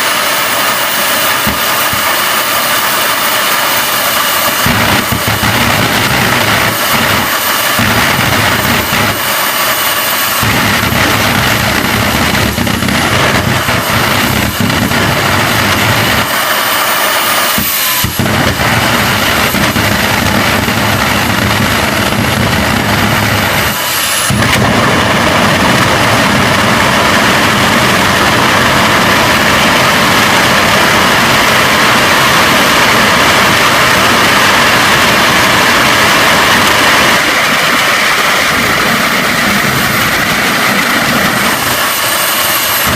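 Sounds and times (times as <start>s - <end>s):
high thin whine: 0.0s - 42.9s
jet engine roaring: 0.0s - 42.9s.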